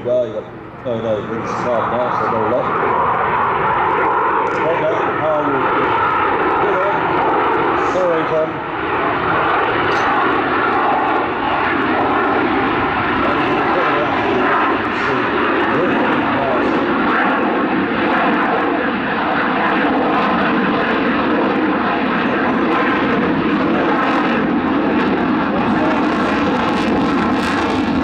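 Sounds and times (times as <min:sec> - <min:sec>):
jet engine noise: 0:00.0 - 0:28.0.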